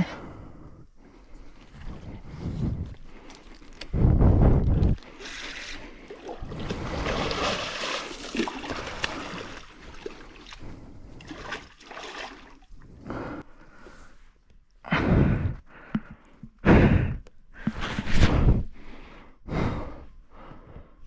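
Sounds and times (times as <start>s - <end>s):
water splashing: 5.0s - 12.7s.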